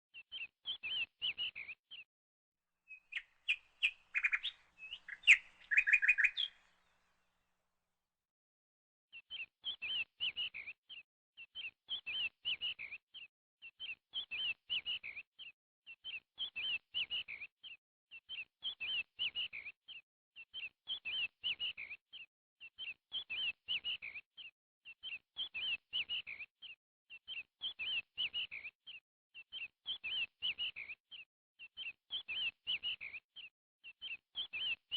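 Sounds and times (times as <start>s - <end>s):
bird chirping: 0.2s - 2.1s, 2.9s - 7.2s, 29.4s - 34.9s.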